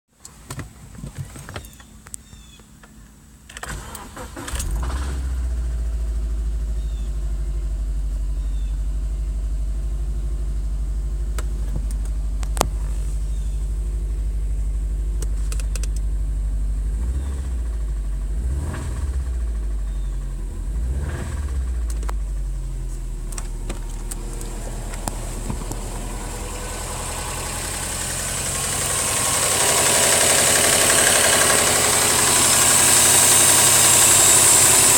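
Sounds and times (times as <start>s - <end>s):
car engine cranking and starting: 0.3s - 34.9s
car engine idling and revving: 0.4s - 34.9s
engine knocking: 23.6s - 34.9s.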